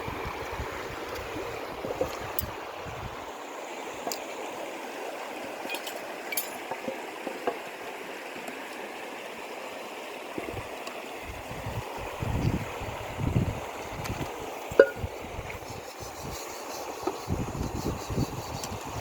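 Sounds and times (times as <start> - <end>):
flowing water rushing: 0.0 - 19.0
light clicks and clinks: 5.6 - 7.6.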